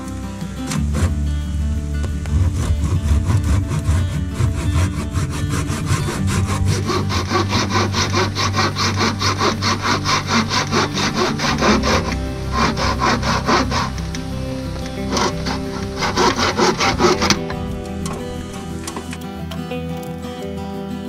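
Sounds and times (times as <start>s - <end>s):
background music: 0.0s - 21.0s
hand saw cutting wood: 2.2s - 19.2s.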